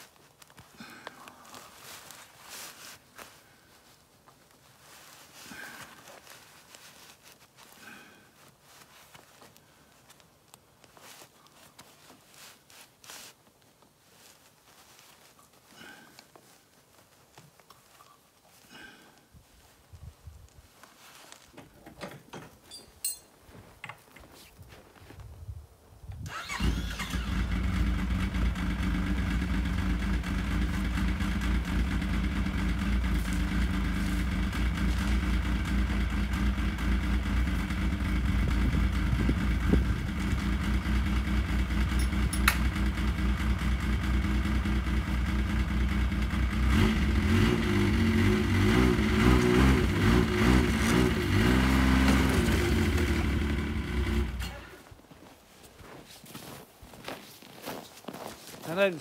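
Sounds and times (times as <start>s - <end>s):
engine running: 26.5s - 54.8s.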